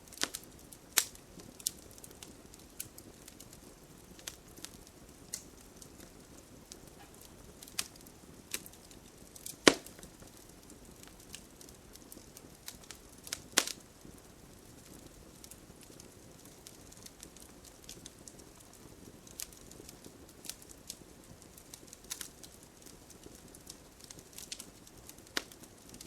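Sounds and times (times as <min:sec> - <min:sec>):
campfire crackling: 0:00.0 - 0:26.0
low steady fire hiss: 0:00.0 - 0:26.0
loud sharp pops: 0:09.4 - 0:10.1.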